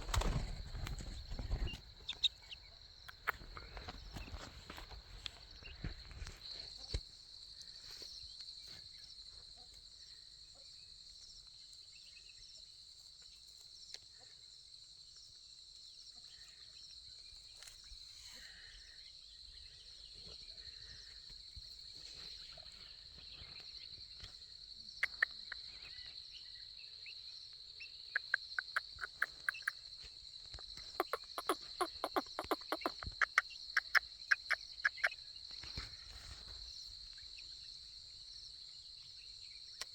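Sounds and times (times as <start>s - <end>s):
insect chorus trilling: 0.0s - 39.9s
short sharp chirps: 25.0s - 25.8s, 28.2s - 29.8s, 30.9s - 35.2s.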